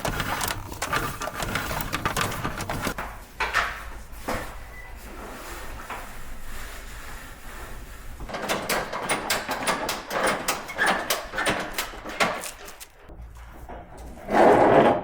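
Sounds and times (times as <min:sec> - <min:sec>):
clicks and knocks of handling: 0:00.0 - 0:03.8, 0:08.3 - 0:13.1.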